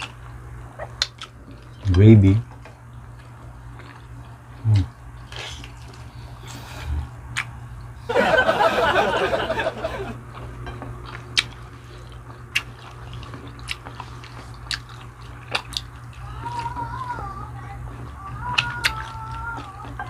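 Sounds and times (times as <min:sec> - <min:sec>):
wet chewing with mouth clicks: 0:00.0 - 0:08.0, 0:10.2 - 0:20.0
crunchy bite and chewing: 0:10.4 - 0:16.8.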